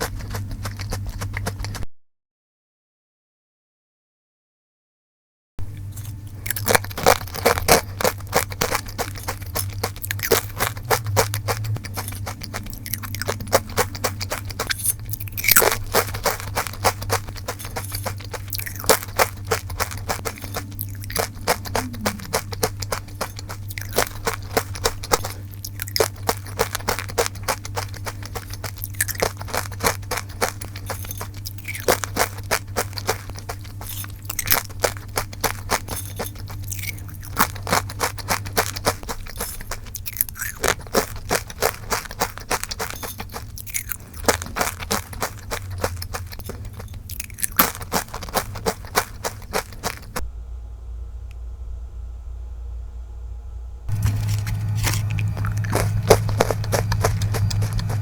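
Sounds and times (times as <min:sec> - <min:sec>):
crunching and chewing chips: 0:00.0 - 0:01.8, 0:05.6 - 0:50.3, 0:53.9 - 0:58.0
low hum: 0:05.6 - 0:58.0.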